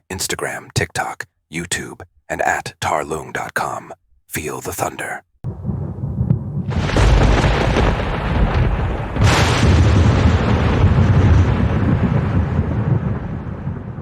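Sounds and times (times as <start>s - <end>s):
thunder crack and rumble: 5.5s - 14.0s.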